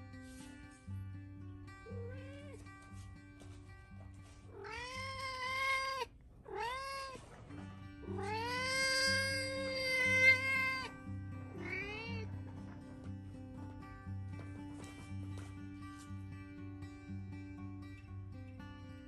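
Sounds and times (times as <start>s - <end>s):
cat meowing: 1.8s - 2.7s, 4.5s - 7.4s, 8.0s - 10.9s, 11.5s - 12.3s
background music: 7.4s - 19.0s.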